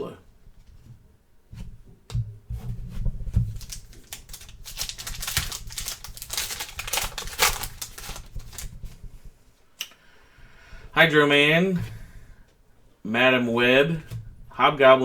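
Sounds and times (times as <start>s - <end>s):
cards and packaging crinkling: 3.3s - 9.0s.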